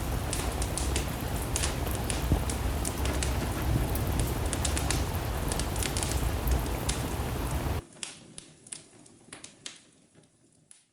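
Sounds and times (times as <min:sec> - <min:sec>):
steady rain: 0:00.0 - 0:07.8
wood fire crackling: 0:00.0 - 0:07.8.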